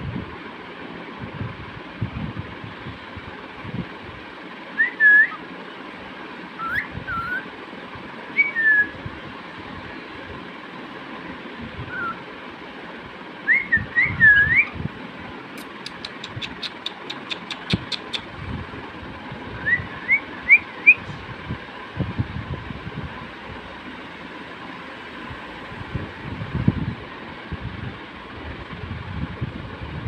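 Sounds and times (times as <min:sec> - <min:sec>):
steady background noise: 0:00.0 - 0:30.0
cockatiel whistling: 0:06.6 - 0:07.4, 0:08.4 - 0:08.9, 0:11.9 - 0:12.2, 0:19.6 - 0:21.1
sharp ticks: 0:15.6 - 0:18.4.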